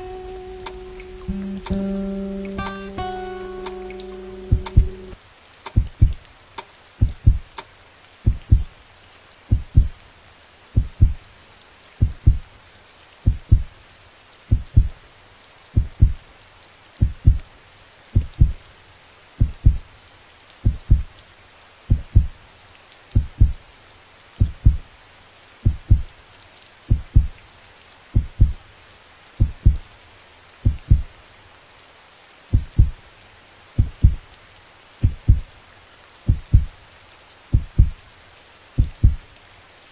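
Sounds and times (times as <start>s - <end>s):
steady hiss: 0.0s - 39.9s
heartbeat thumps: 4.5s - 5.0s, 5.7s - 6.2s, 7.0s - 7.6s, 8.2s - 8.7s, 9.5s - 9.9s, 10.8s - 11.2s, 12.0s - 12.4s, 13.2s - 13.7s, 14.5s - 15.0s, 15.8s - 16.2s, 17.0s - 17.4s, 18.2s - 18.6s, 19.4s - 19.8s, 20.6s - 21.1s, 21.9s - 22.3s, 23.2s - 23.6s, 24.4s - 24.8s, 25.6s - 26.1s, 26.9s - 27.3s, 28.2s - 28.6s, 29.4s - 29.8s, 30.6s - 31.1s, 32.5s - 33.0s, 33.8s - 34.2s, 35.0s - 35.5s, 36.3s - 36.7s, 37.5s - 38.0s, 38.8s - 39.2s.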